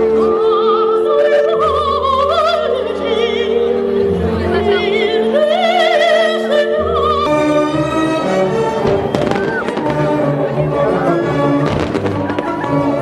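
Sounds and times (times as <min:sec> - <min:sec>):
operatic singing: 0:00.0 - 0:13.0
orchestra playing: 0:00.0 - 0:13.0.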